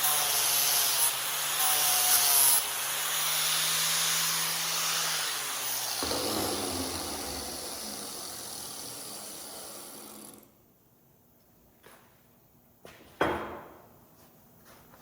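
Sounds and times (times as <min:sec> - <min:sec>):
angle grinder grinding steel: 0:03.2 - 0:10.4.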